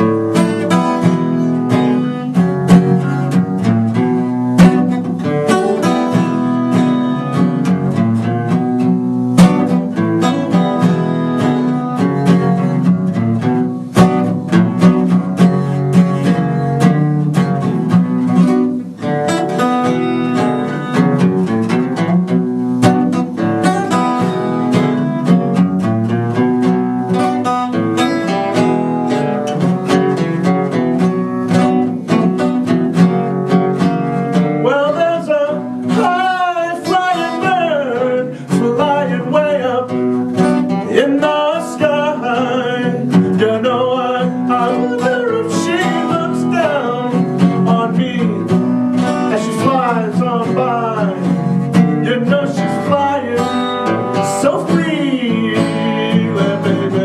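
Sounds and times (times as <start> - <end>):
acoustic guitar strumming: 0.0 - 57.0
person singing: 34.3 - 57.0.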